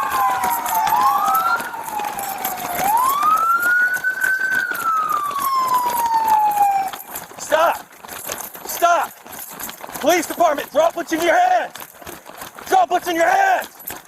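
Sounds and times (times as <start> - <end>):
police siren wailing: 0.0 - 7.2
running footsteps: 0.0 - 14.0.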